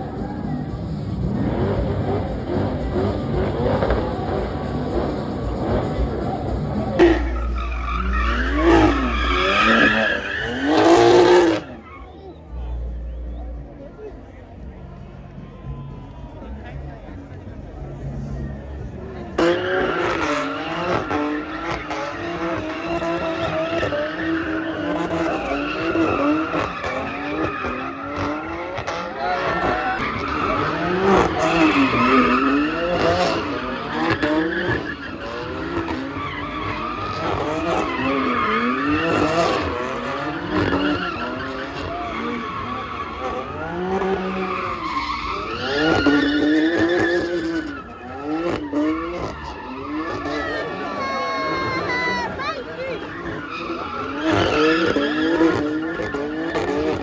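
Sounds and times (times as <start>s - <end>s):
car engine revving: 0.0s - 15.1s, 15.7s - 57.0s
tyres squealing: 6.9s - 12.5s, 19.4s - 57.0s.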